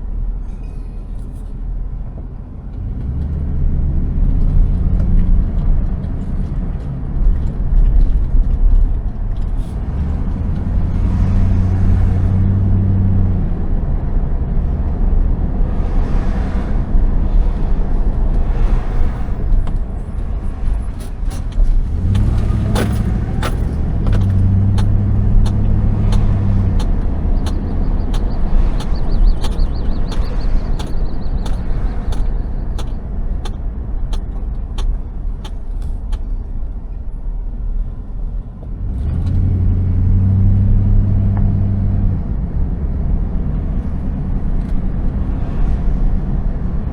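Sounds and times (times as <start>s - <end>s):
car engine and road rumble: 0.0s - 46.9s
evenly spaced ticks: 24.2s - 36.3s.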